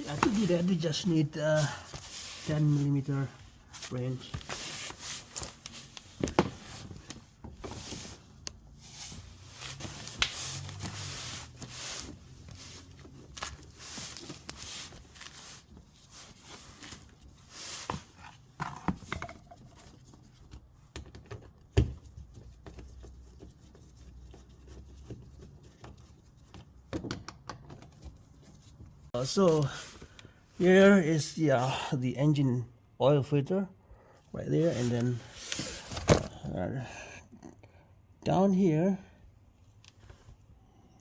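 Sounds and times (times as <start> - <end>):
plastic covers being handled: 3.8 - 20.8.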